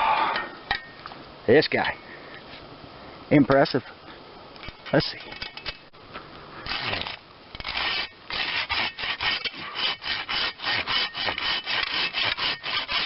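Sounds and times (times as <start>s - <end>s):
handsaw cutting wood: 7.7s - 13.0s.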